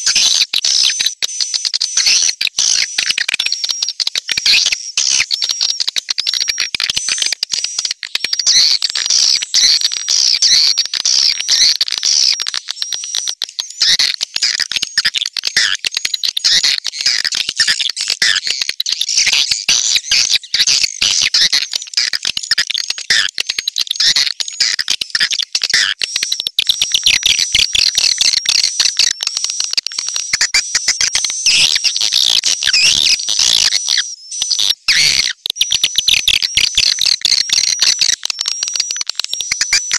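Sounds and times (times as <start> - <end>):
rapid high bird chirping: 26.7 - 39.9.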